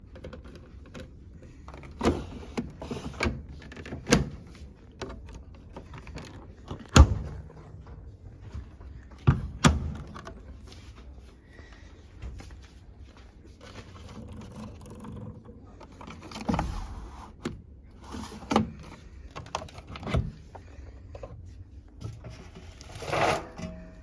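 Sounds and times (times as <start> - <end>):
washing machine door opening and shutting: 1.8 - 10.6.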